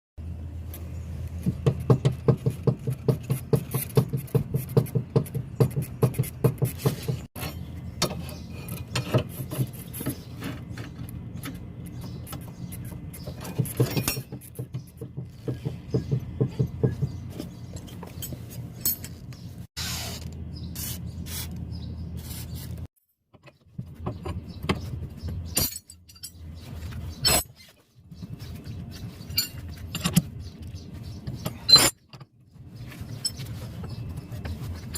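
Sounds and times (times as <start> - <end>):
metal clanks: 13.4 - 14.6, 25.5 - 26.5.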